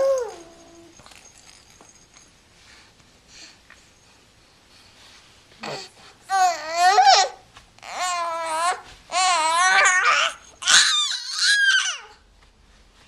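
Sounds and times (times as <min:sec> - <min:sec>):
baby cooing and babbling: 0:05.6 - 0:12.2.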